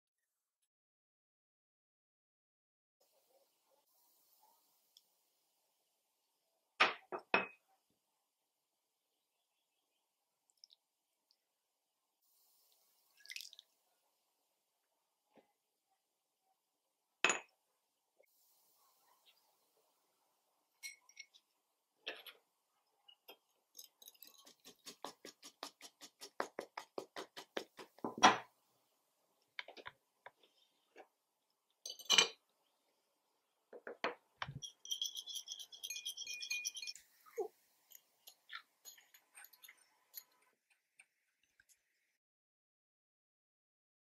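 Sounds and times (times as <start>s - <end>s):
whisk rattling in ceramic bowl: 23.8s - 27.9s, 34.5s - 37.0s
utensils clinking against bowls: 34.4s - 40.4s.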